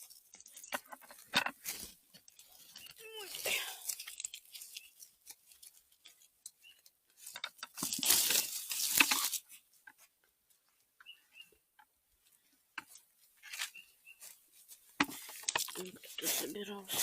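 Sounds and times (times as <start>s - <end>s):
leaf litter rustling and crackling: 0.0s - 9.6s, 12.9s - 17.0s
twigs snapping: 0.0s - 9.6s, 15.0s - 16.2s
short bird chirps: 13.7s - 14.2s.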